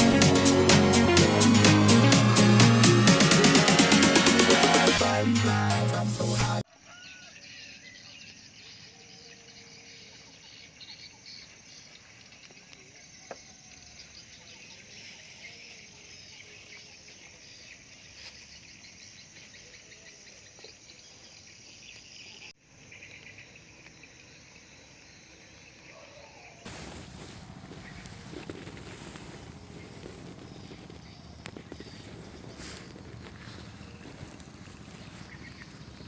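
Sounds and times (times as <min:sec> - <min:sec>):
insects chirring: 0:06.8 - 0:36.0
frogs calling: 0:19.1 - 0:36.0.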